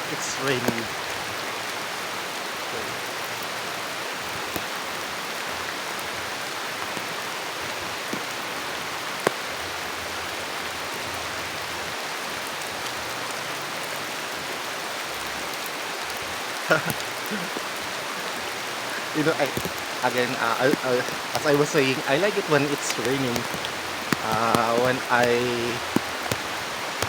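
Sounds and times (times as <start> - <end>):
steady rain falling: 0.0 - 27.0
sharp ticks: 18.9 - 27.0.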